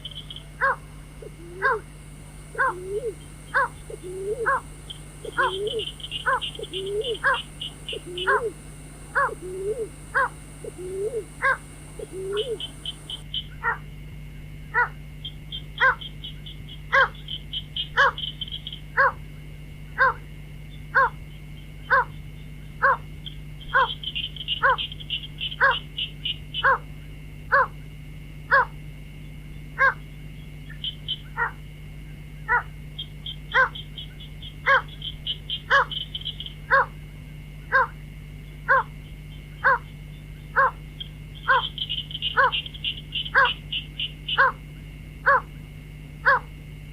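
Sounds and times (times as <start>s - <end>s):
bird calling: 0.0s - 13.5s, 23.6s - 26.8s, 32.5s - 36.9s, 39.5s - 44.6s, 45.3s - 45.6s, 46.3s - 46.5s
steady hum: 0.0s - 46.9s
rapid high ticking: 2.0s - 13.2s.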